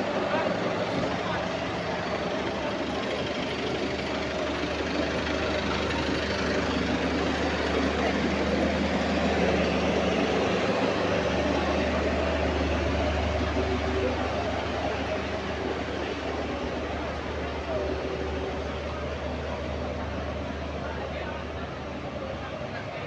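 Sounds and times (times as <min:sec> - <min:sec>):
bus engine drone: 0:00.0 - 0:23.0
odd bus noise: 0:00.0 - 0:23.0
road noise rumble: 0:00.0 - 0:23.0.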